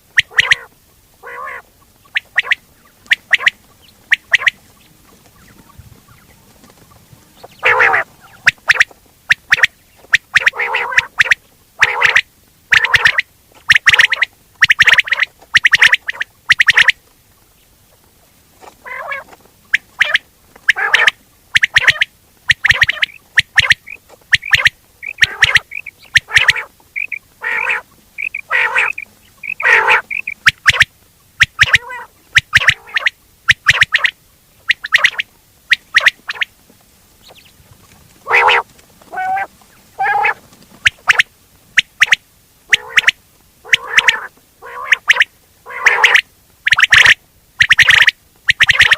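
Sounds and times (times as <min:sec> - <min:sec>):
quail calling: 0:00.0 - 0:17.0, 0:18.6 - 0:36.6, 0:37.2 - 0:48.9.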